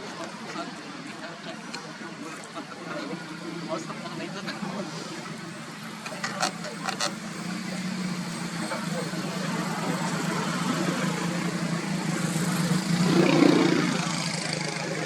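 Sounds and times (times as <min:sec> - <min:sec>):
low engine hum: 0:03.5 - 0:15.0.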